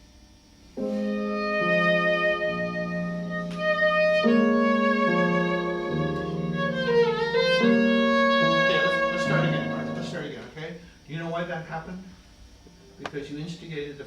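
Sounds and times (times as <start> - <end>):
bowed viola with vibrato: 0.8 - 10.4.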